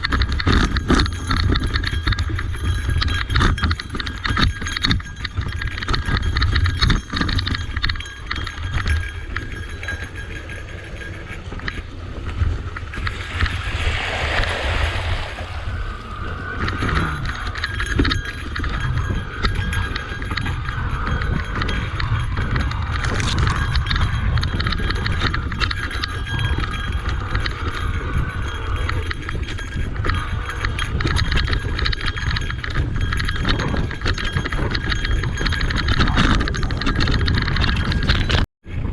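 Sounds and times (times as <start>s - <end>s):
clicks and knocks from bike: 0.0s - 13.6s, 16.5s - 38.4s
bike rattling over rocky trail: 0.0s - 13.8s, 16.1s - 38.9s
low wind rumble on microphone: 0.0s - 38.9s
rushing hiss: 13.1s - 16.6s.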